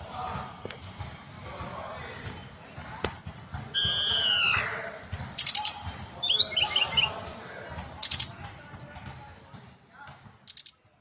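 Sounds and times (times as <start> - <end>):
songbird singing: 3.1 - 4.8, 5.4 - 7.3.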